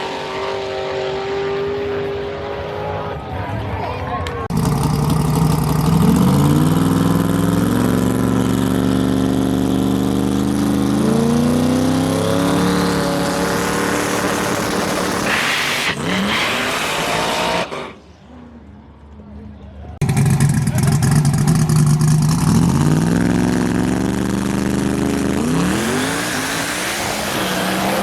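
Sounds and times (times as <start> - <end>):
race car engine at high revs: 0.0 - 3.2, 4.5 - 18.1, 20.0 - 28.0.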